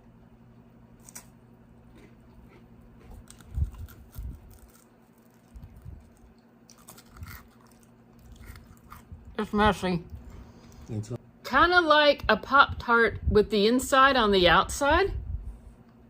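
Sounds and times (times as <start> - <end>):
cookie crunching when chewed: 1.0 - 9.2.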